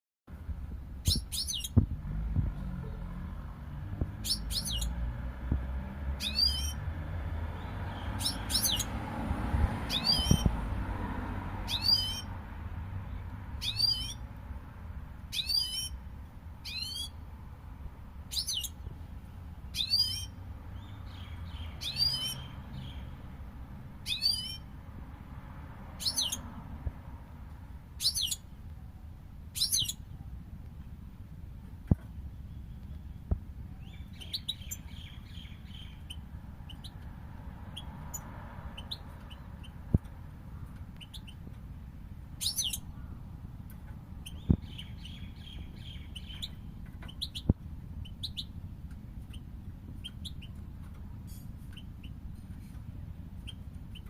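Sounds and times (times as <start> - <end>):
goldfinch calling: 1.0 - 1.8, 4.2 - 4.9, 8.2 - 8.9, 11.7 - 12.3, 13.6 - 14.2, 15.3 - 16.0, 19.8 - 20.3, 42.4 - 42.8.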